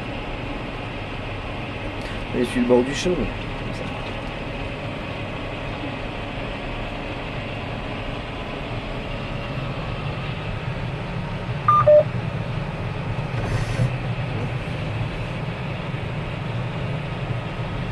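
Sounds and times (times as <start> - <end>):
tractor engine humming: 0.0 - 17.9
two-tone electronic beep: 11.7 - 12.1.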